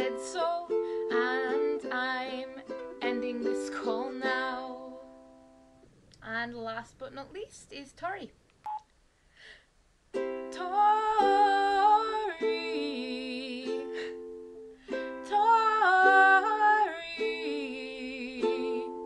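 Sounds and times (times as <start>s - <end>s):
woman singing: 0.0s - 5.2s, 10.4s - 14.3s, 14.9s - 19.0s.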